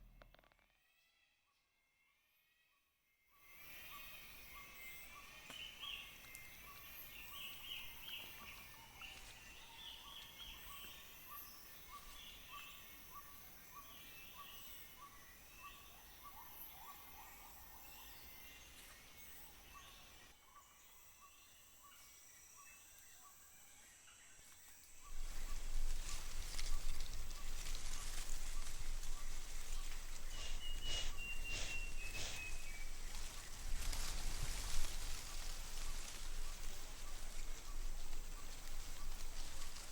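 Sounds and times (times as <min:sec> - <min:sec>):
high insect drones: 0:21.4 - 0:38.0
high chattering animal calls: 0:30.3 - 0:32.6
short repeating animal call: 0:30.4 - 0:32.5.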